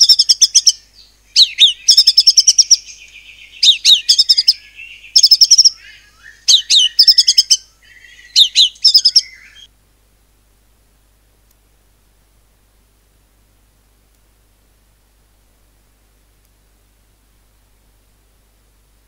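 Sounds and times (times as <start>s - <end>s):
bird singing rapid whistles: 0.0s - 9.7s.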